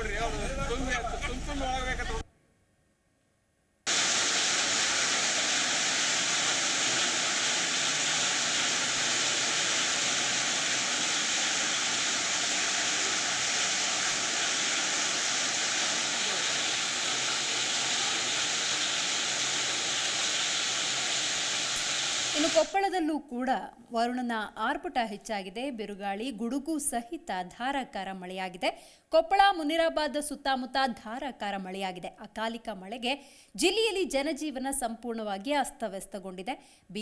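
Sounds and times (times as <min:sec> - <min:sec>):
heavy rain pouring: 0:03.9 - 0:22.8.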